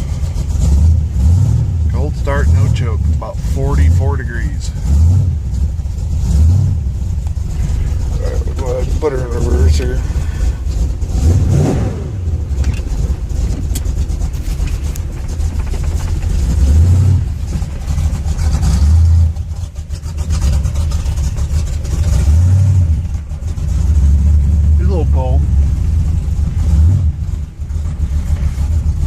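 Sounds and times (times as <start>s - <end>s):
truck engine idling and revving: 0.0s - 29.0s.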